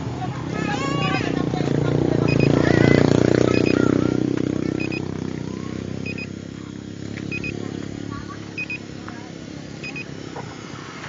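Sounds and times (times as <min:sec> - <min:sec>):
motorcycle engine running: 0:00.0 - 0:11.0
faint electronic double beep: 0:02.3 - 0:02.6, 0:04.8 - 0:05.1, 0:06.0 - 0:06.3, 0:07.3 - 0:07.6, 0:08.6 - 0:08.8, 0:09.8 - 0:10.1.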